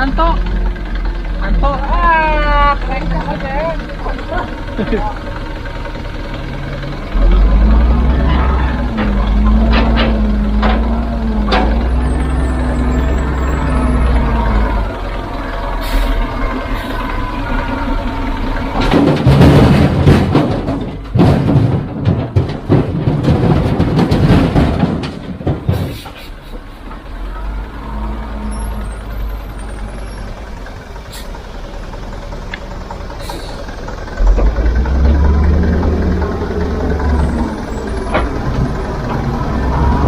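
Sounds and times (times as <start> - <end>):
diesel engine drone: 0.0 - 40.0
machinery clattering and knocks: 0.0 - 40.0.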